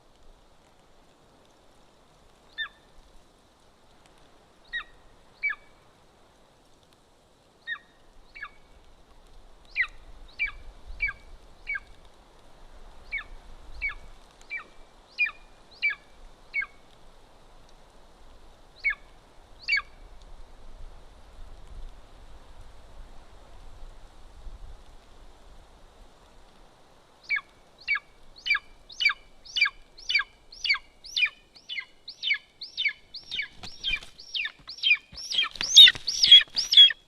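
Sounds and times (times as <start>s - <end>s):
eagle calling: 27.3s - 37.0s.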